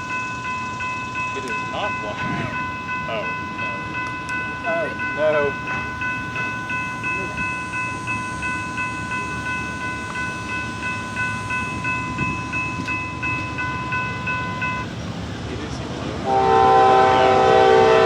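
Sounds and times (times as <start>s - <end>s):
crossing warning bell ringing: 0.0s - 15.0s, 16.2s - 18.0s
freight train rolling past: 0.0s - 18.0s.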